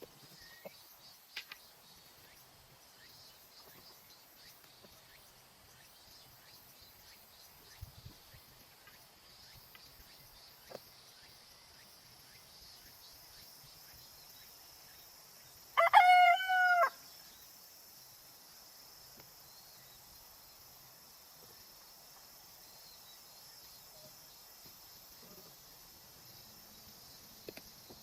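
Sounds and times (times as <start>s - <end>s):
insects chirring: 0.0s - 28.0s
rooster crowing: 15.8s - 17.0s.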